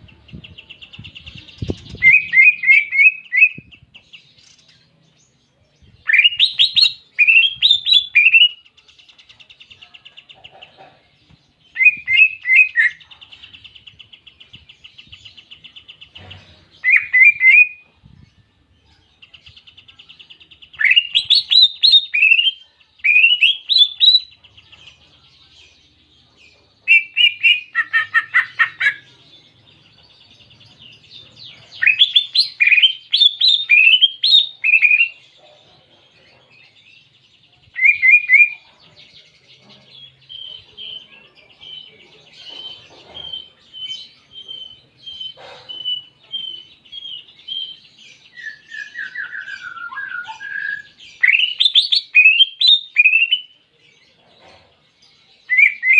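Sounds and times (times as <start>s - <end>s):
bird singing whistles and trills: 0.4s - 3.9s, 6.0s - 8.6s, 11.7s - 13.0s, 16.8s - 17.9s, 19.4s - 24.4s, 26.9s - 29.0s, 31.8s - 35.2s, 37.7s - 38.6s, 42.6s - 53.5s, 55.4s - 55.9s.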